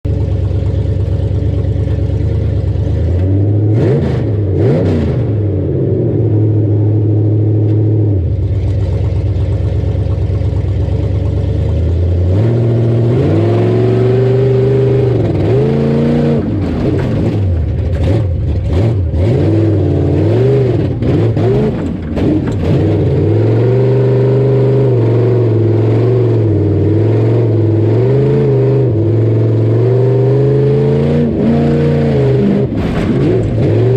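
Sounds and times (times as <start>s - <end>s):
truck engine revving: 2.6s - 9.3s, 10.6s - 33.9s
clatters: 16.4s - 19.0s, 20.9s - 23.1s, 32.7s - 33.9s.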